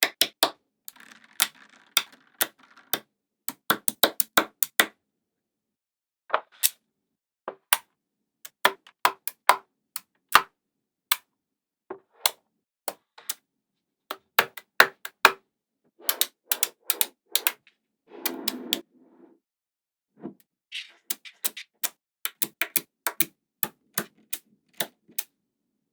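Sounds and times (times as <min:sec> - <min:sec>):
magnetic balls clicking together: 0:00.0 - 0:04.9, 0:16.1 - 0:17.6, 0:22.3 - 0:23.3.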